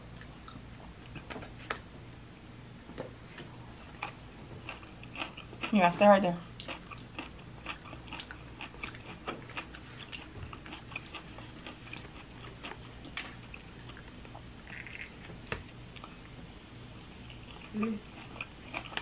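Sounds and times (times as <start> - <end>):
person chewing food: 3.8 - 5.8, 6.6 - 16.2, 17.3 - 19.0.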